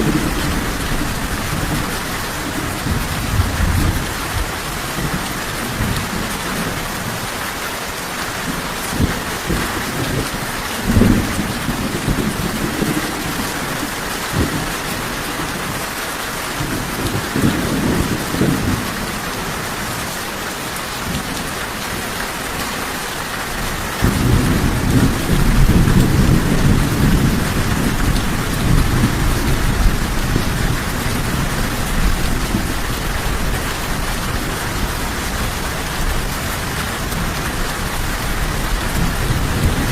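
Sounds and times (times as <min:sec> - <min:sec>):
thunder rumbling: 0:00.0 - 0:07.2, 0:08.4 - 0:15.8, 0:24.0 - 0:39.9
steady rain falling: 0:00.0 - 0:39.9.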